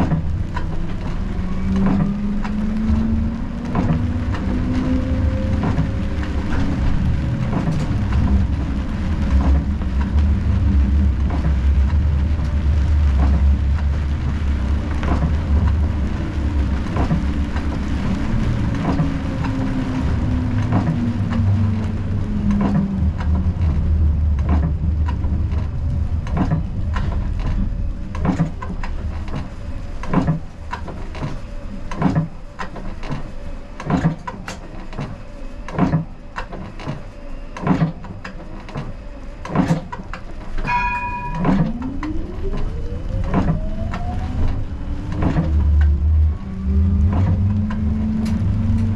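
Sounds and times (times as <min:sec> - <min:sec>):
sharp knocks and clicks: 0:00.0 - 0:04.6, 0:24.4 - 0:33.2, 0:37.6 - 0:46.0
tram wheels and motors rumbling: 0:00.0 - 0:48.9.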